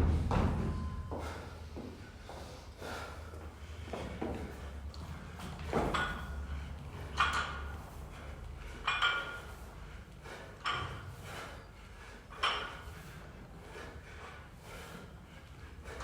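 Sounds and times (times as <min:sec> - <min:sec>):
gym weights clinking metal on metal: 0:05.8 - 0:06.4, 0:08.8 - 0:09.6.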